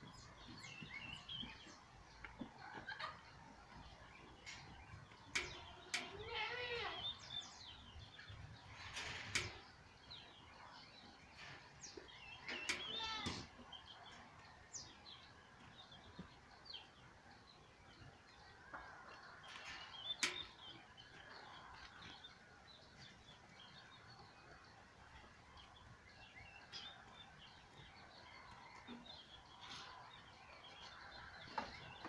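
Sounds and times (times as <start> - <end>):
birds chirping and calling: 0.0 - 32.0.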